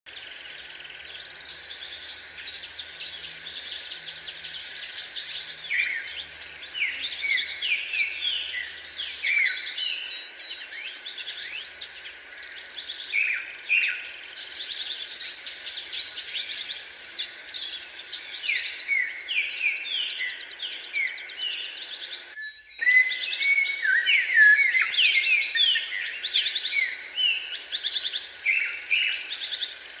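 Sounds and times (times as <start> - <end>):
chorus of birds chirping: 0.1 - 30.0.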